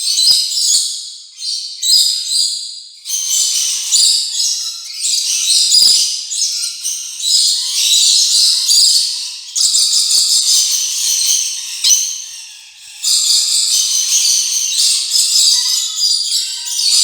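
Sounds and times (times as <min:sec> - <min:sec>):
parrots chattering: 0:07.7 - 0:17.0.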